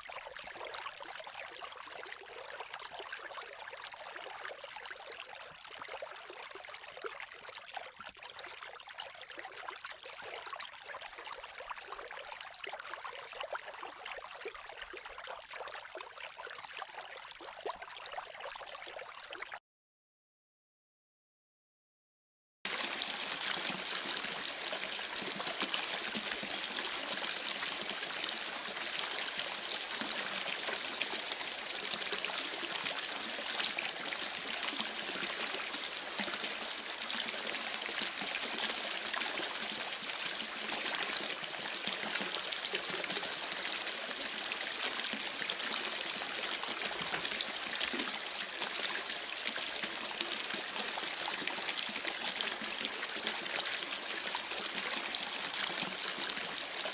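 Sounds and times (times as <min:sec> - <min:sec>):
creek babbling: 0:22.7 - 0:45.3.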